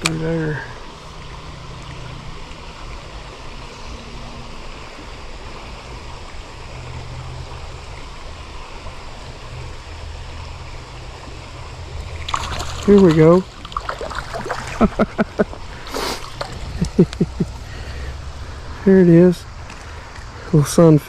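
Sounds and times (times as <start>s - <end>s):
creek water rushing: 0.0s - 21.0s.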